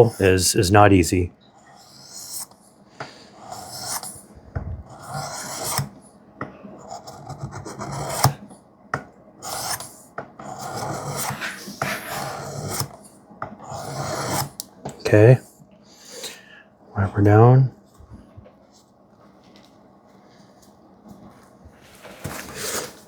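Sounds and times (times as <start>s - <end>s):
knife scraping on sharpening stone: 3.5s - 4.1s, 4.9s - 5.9s, 10.5s - 12.9s.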